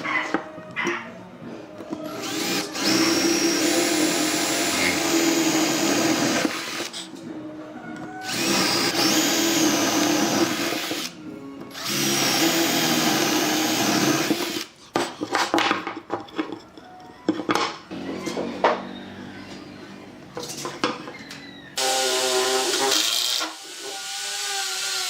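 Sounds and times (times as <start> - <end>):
power tool running: 2.1 - 7.0, 8.2 - 14.7, 21.8 - 25.0
knocks and clicks of parts handled: 14.9 - 17.8.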